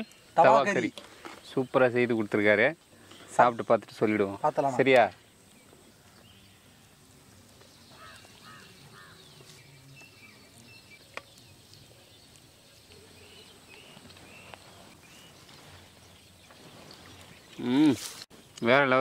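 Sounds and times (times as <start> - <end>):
faint bird chirps: 4.4 - 18.9.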